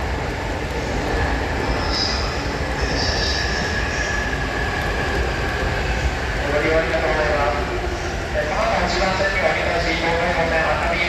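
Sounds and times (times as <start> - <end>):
train rumbling through station: 0.0 - 11.0
train whine: 0.0 - 11.0
high wheel squeals: 1.8 - 4.4.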